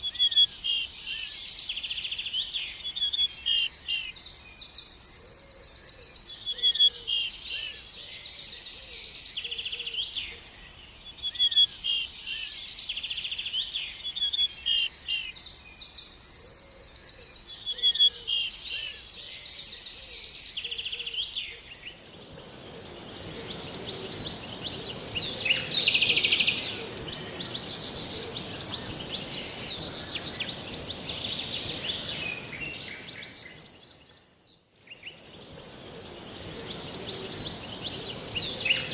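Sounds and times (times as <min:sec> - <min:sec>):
birds chirping: 0:21.6 - 0:38.9
steady high hiss: 0:21.7 - 0:38.9.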